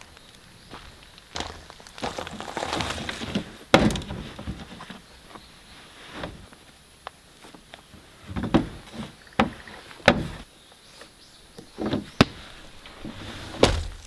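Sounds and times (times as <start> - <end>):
irregular knocks and thuds: 1.3 - 4.6, 13.1 - 14.0.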